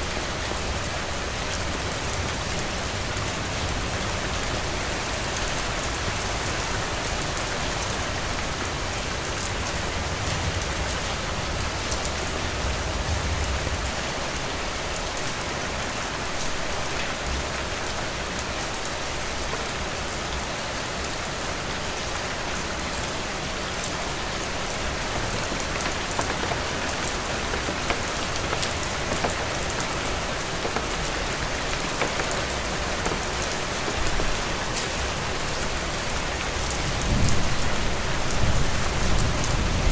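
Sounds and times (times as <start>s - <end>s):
heavy rain falling: 0.0s - 39.9s
individual raindrop ticks: 23.8s - 37.7s.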